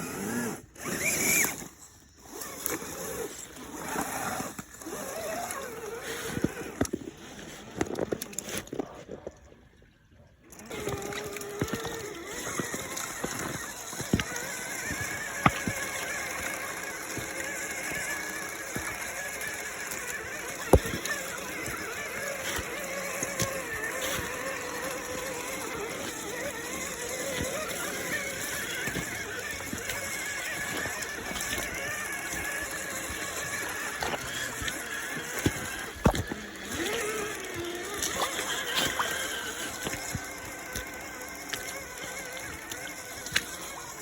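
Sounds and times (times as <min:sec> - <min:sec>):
electric motors whining: 0:00.0 - 0:44.0.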